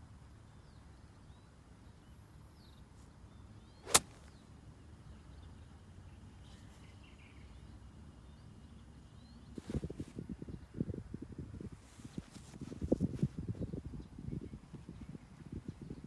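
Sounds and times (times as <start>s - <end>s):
golf club striking ball: 3.8s - 4.4s.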